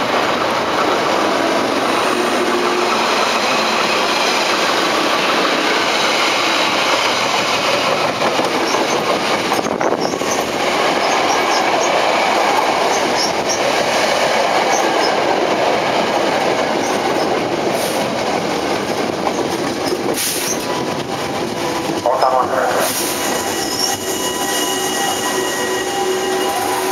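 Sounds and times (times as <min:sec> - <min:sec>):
electric train running: 0:00.0 - 0:26.9
wheels squeaking: 0:23.1 - 0:26.9.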